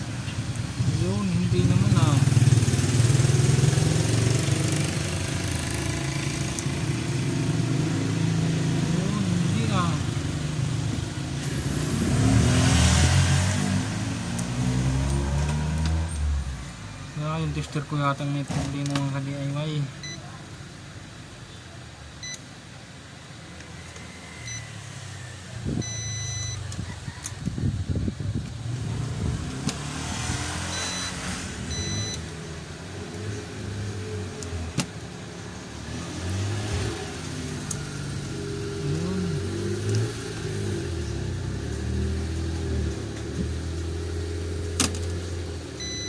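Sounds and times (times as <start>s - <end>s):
engine rumbling low: 0.0s - 46.0s
short high electronic beeps: 25.8s - 26.6s, 30.7s - 32.2s.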